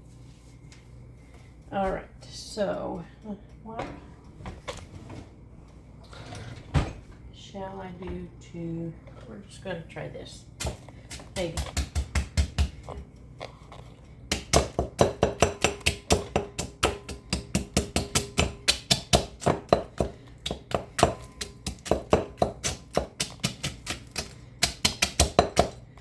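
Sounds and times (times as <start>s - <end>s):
pounding pork rinds in container: 10.6s - 26.0s.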